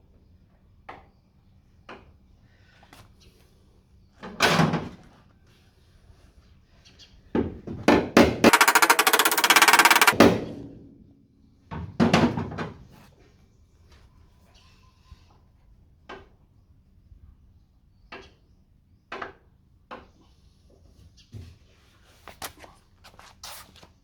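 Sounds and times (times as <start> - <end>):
sharp knocks on metal: 7.9 - 10.5
rapid rattling impacts on metal: 8.4 - 10.4.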